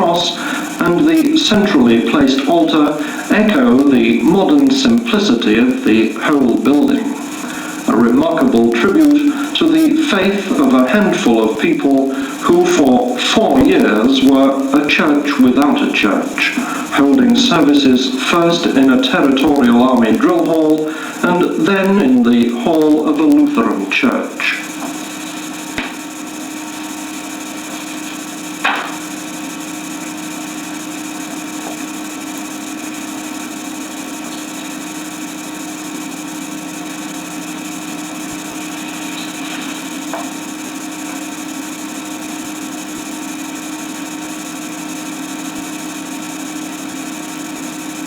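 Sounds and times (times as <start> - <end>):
recording hiss and hum: 0.0 - 48.0.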